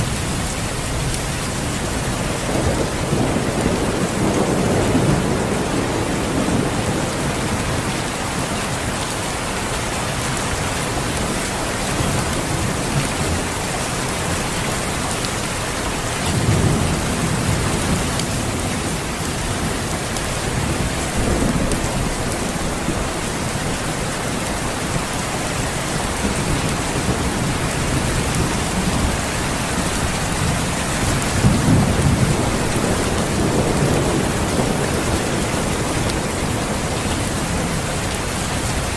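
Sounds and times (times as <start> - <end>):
dense rainfall: 0.0 - 38.9
low rolls of thunder: 2.0 - 8.4, 25.8 - 37.9.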